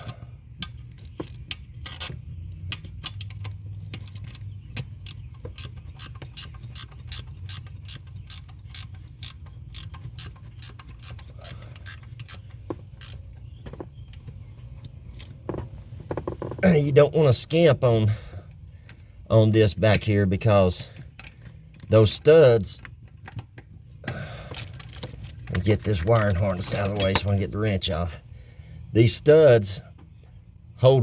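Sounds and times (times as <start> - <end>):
ratchet wrench clicking: 2.7 - 13.2.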